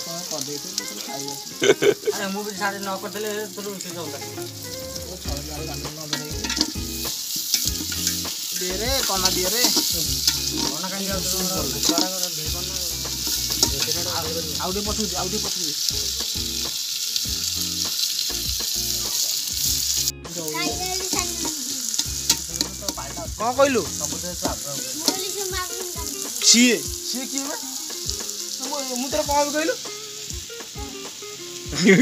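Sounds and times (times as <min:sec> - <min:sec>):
food frying in a pot: 0:00.0 - 0:32.0
metal ladle scraping a pot: 0:06.1 - 0:12.1, 0:21.9 - 0:23.0.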